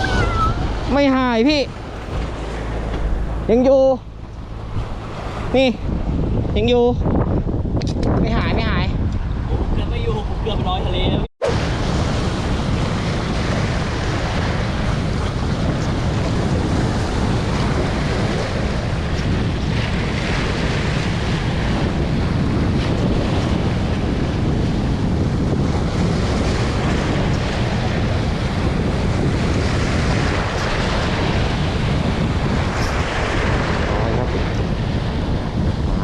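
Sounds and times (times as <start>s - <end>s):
sea waves washing on shore: 0.0s - 6.9s, 11.4s - 36.0s
wind blowing across microphone: 0.0s - 36.0s.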